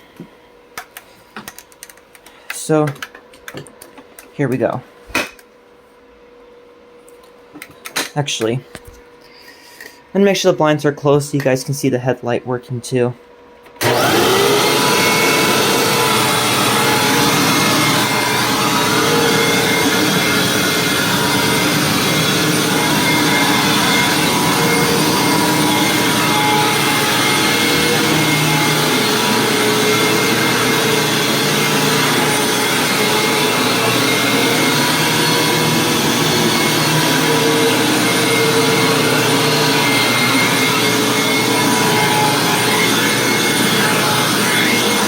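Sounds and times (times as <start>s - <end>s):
vacuum cleaner on carpet: 13.8s - 45.0s.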